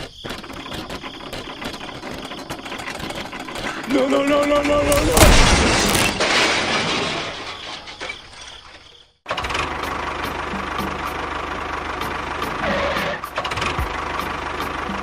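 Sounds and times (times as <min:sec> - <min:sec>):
small engine knocking: 0:00.0 - 0:04.6, 0:09.3 - 0:15.0.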